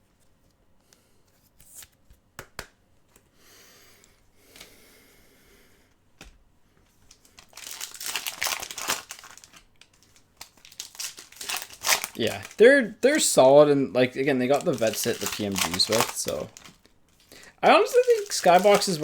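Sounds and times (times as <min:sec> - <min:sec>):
cards being shuffled: 0:01.3 - 0:03.3, 0:14.4 - 0:19.0
wrapper crinkling and tearing: 0:07.2 - 0:13.4, 0:14.2 - 0:19.0.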